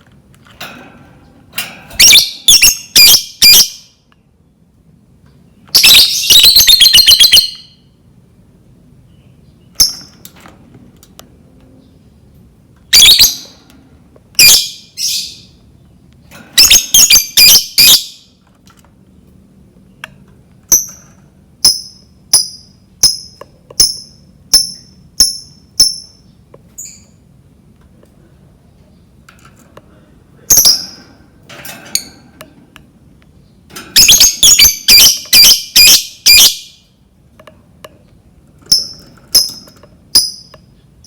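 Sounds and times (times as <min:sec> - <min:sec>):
bird chattering trill: 0:02.0 - 0:03.9, 0:05.8 - 0:07.8, 0:16.6 - 0:18.3, 0:34.0 - 0:36.9
shrill bird calls: 0:02.0 - 0:04.0, 0:05.7 - 0:08.0, 0:12.9 - 0:13.6, 0:14.4 - 0:15.6, 0:16.6 - 0:18.4, 0:34.0 - 0:36.9
short high bird chirps: 0:34.0 - 0:36.8.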